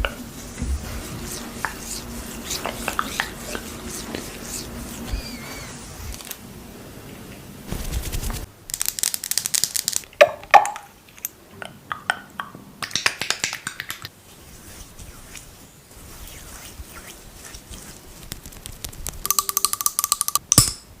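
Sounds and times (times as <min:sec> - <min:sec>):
close crinkling and crackling: 0:17.5 - 0:19.3.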